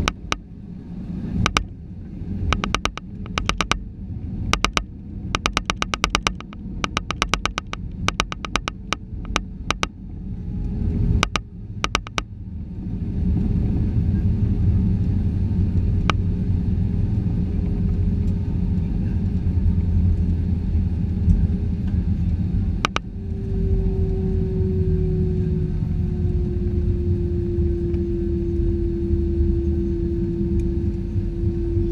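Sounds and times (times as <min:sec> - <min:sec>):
sharp clicks: 0:00.0 - 0:00.4, 0:01.4 - 0:01.7, 0:02.5 - 0:03.8, 0:04.5 - 0:09.9, 0:11.2 - 0:12.3, 0:22.8 - 0:23.1
airliner cabin rumble: 0:00.0 - 0:31.9.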